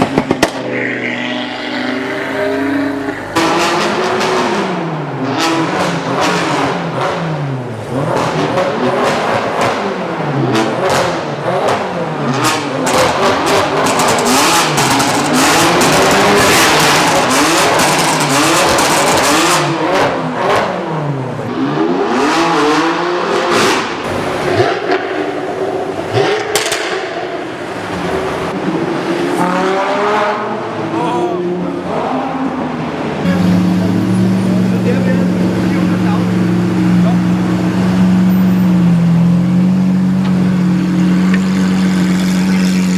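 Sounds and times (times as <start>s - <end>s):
exhaust pops and crackles: 0.0s - 0.7s, 25.9s - 27.2s
car engine revving: 0.0s - 42.9s.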